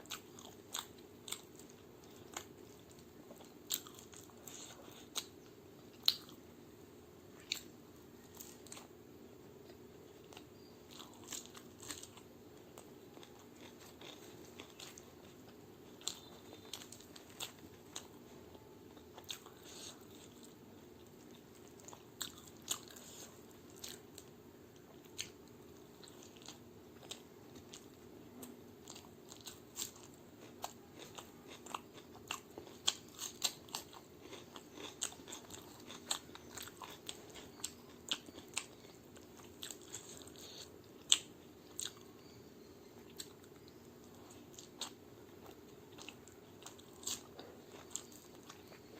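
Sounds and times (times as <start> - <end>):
faint steady hum: 0.0 - 48.9
wet chewing: 26.0 - 42.4, 43.0 - 48.9
crunchy bites: 28.4 - 42.1.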